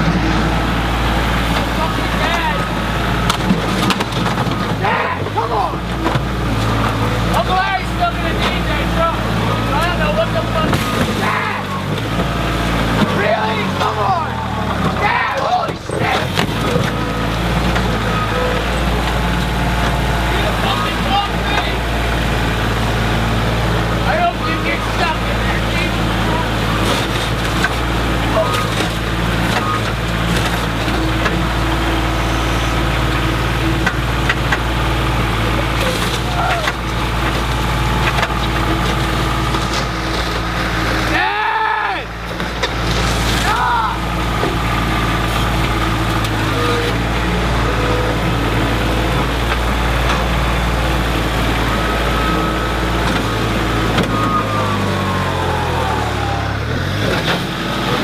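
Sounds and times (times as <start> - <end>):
heavy machine engine running: 0.0 - 58.0.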